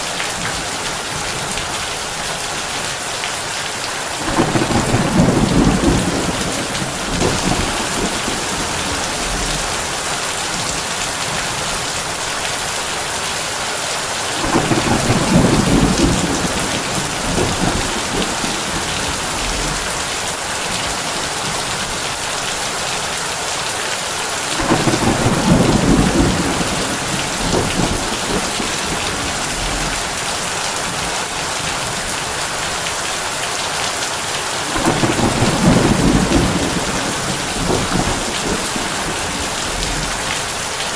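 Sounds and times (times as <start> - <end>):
heavy rain on a tin roof: 0.0 - 40.9
thunder rumbling: 4.2 - 12.1, 14.4 - 22.0, 24.4 - 32.5, 34.6 - 40.9.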